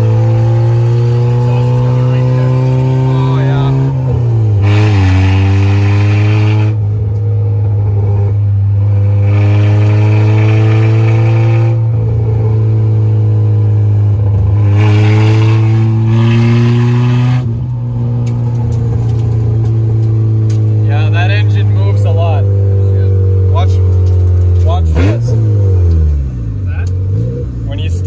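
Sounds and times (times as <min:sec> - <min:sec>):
car engine and exhaust accelerating: 0:00.0 - 0:28.0.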